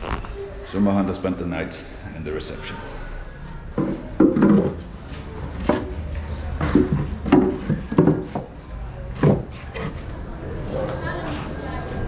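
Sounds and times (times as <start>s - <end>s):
irregular knocks and clunks: 3.8s - 4.9s, 5.5s - 10.1s.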